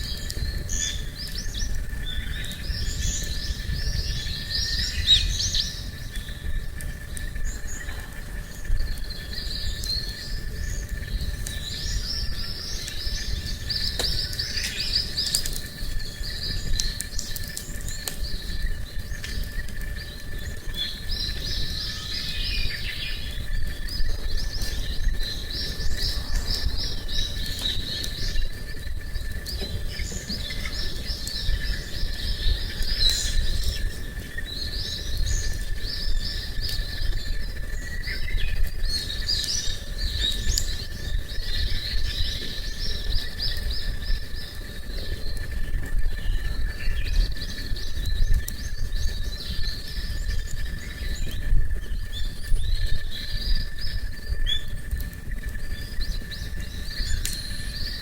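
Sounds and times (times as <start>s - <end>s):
small birds chirping: 0.0s - 58.0s
low rumble: 23.2s - 36.0s.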